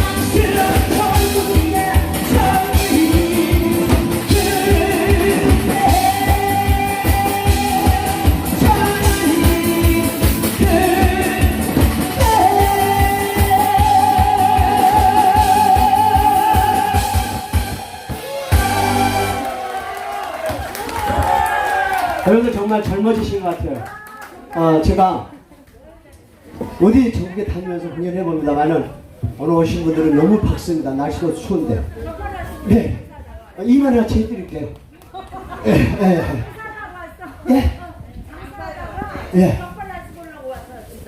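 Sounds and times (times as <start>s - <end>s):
person singing with vibrato: 0.0s - 19.4s
backing track with drum beat: 0.0s - 19.5s.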